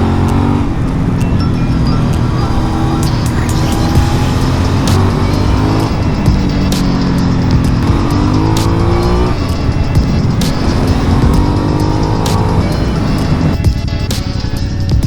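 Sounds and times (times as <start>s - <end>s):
motorcycle engine accelerating: 0.0s - 15.0s
wind rush: 0.0s - 15.0s.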